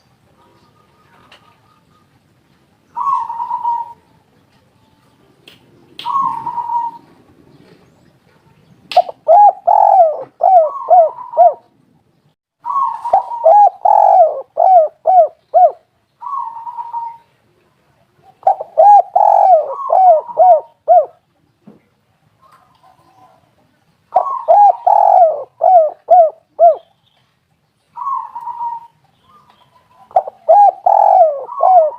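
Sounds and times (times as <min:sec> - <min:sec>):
dove cooing: 0:02.9 - 0:04.1, 0:06.0 - 0:07.8, 0:09.0 - 0:11.8, 0:12.6 - 0:17.4, 0:18.2 - 0:21.2, 0:24.1 - 0:26.9, 0:28.0 - 0:31.9.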